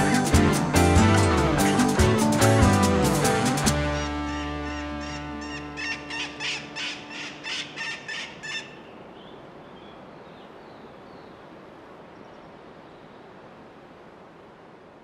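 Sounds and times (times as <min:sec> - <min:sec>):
background music: 0:00.0 - 0:07.7
bird sharp calls: 0:04.0 - 0:10.0.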